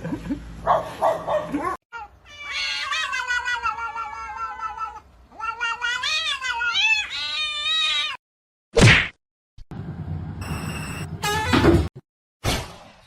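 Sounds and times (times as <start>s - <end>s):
cat meowing: 2.0s - 8.2s.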